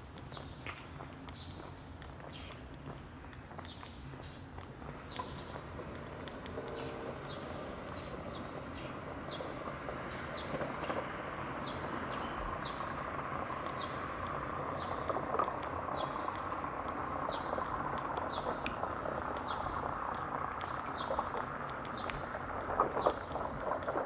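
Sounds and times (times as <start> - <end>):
small birds chirping: 0.2 - 24.0
steady rushing noise: 4.1 - 24.0.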